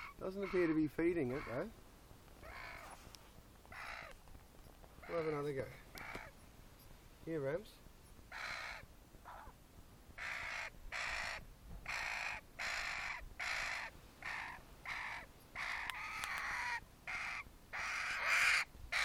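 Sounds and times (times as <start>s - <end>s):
young bird squawking: 0.0s - 1.7s, 2.4s - 3.0s, 3.7s - 4.2s, 5.0s - 6.3s, 10.2s - 19.0s.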